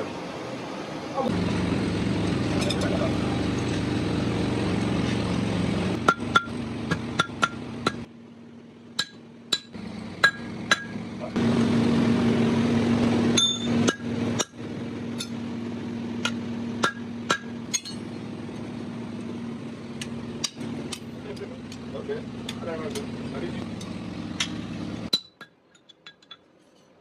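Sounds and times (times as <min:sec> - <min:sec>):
hammer on metal: 0:06.0 - 0:08.1, 0:09.0 - 0:11.0, 0:16.2 - 0:18.0.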